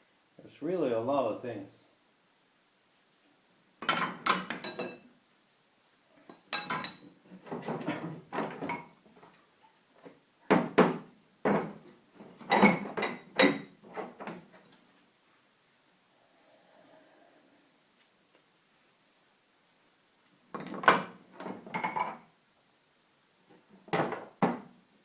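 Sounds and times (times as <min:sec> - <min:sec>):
metal tools knocking and clinking: 0:03.8 - 0:05.0, 0:06.4 - 0:08.9, 0:12.4 - 0:14.3, 0:23.9 - 0:24.6.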